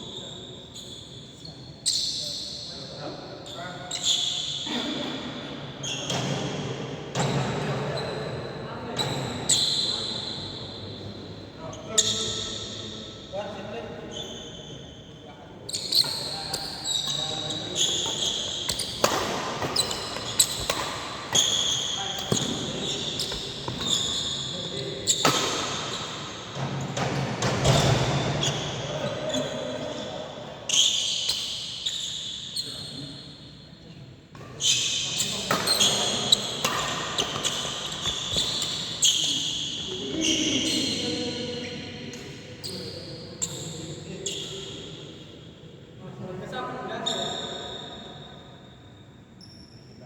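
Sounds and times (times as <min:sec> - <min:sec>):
shoes squeaking on court floor: 0:00.0 - 0:05.2, 0:07.2 - 0:11.0, 0:11.6 - 0:13.2, 0:13.9 - 0:33.5, 0:34.4 - 0:45.2, 0:46.8 - 0:50.0
rackets striking shuttlecock: 0:18.0 - 0:23.9, 0:35.4 - 0:38.5
racket striking shuttlecock: 0:18.7 - 0:21.6.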